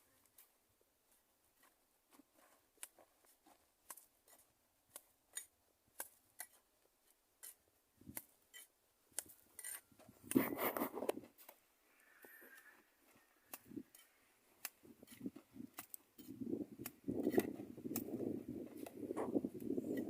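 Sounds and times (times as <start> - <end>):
faint clicks and light scrapes: 7.4 - 20.0.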